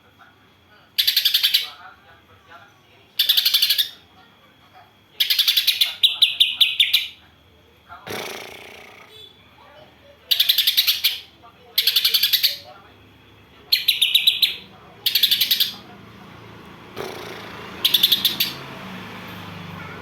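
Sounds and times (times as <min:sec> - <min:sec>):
bird chattering calls: 0:01.0 - 0:01.8, 0:03.2 - 0:04.0, 0:05.2 - 0:07.2, 0:10.3 - 0:12.7, 0:13.7 - 0:15.9, 0:17.0 - 0:18.7.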